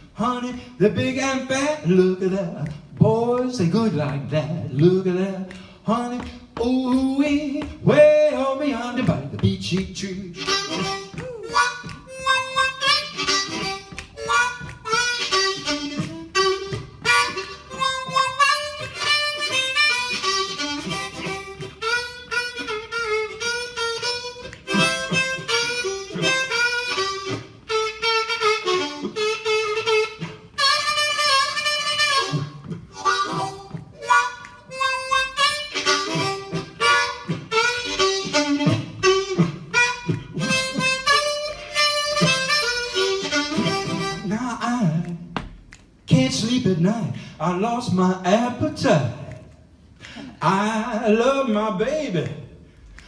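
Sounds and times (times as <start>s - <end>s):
blues harmonica solo: 0.0s - 45.1s
band playing: 7.4s - 45.1s.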